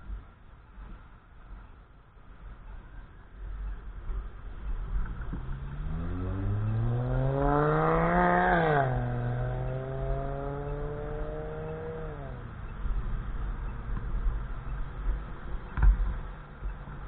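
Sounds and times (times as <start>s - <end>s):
vehicle engine accelerating: 4.2s - 17.0s.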